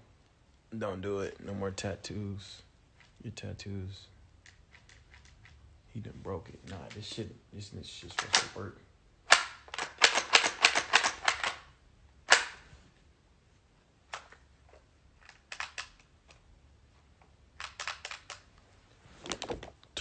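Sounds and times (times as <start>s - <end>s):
bb gun mechanical clicks: 8.1s - 8.6s, 9.3s - 11.6s, 12.3s - 12.6s.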